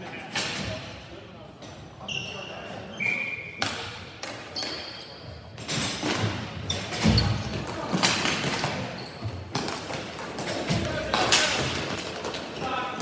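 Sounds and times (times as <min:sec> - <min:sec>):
hockey sticks clacking on ball: 0:05.6 - 0:13.0.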